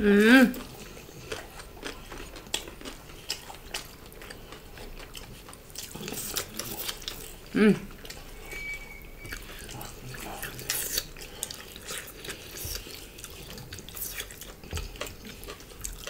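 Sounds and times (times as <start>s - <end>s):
moist chewing: 0.5s - 16.0s
faint thin high tone: 8.4s - 9.4s.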